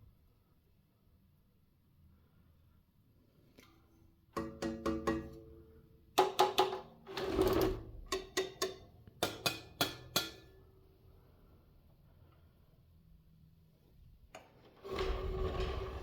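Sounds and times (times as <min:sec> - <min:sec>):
metal rattling scrape: 0:14.8 - 0:16.0.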